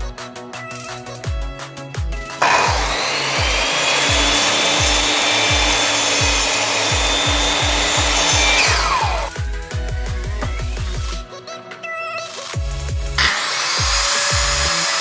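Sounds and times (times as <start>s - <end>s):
power carving tool grinding wood: 2.4s - 9.4s, 13.2s - 15.0s.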